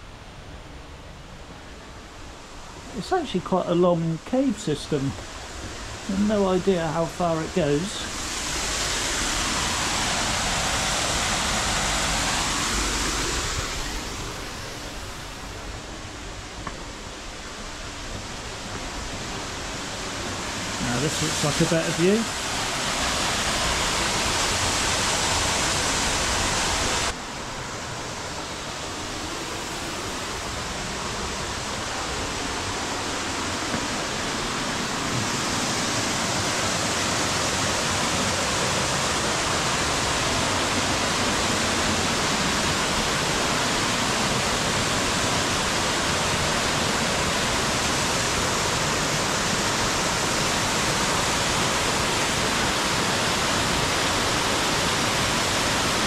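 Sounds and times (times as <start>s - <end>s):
waterfall roar: 0.0s - 56.0s.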